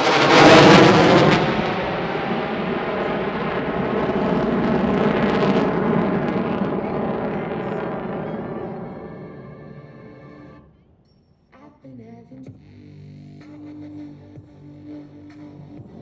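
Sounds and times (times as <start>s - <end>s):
jet engine roar: 0.0s - 10.8s.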